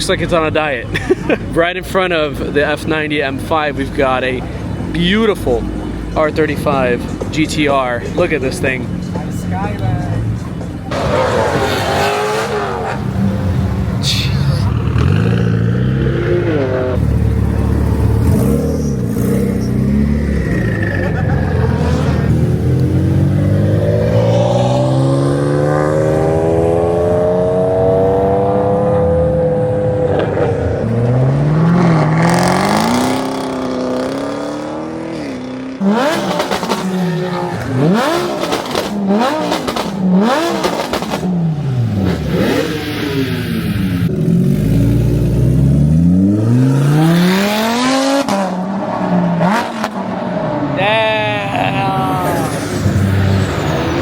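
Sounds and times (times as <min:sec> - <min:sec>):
car engine revving hard: 0:10.9 - 0:50.7.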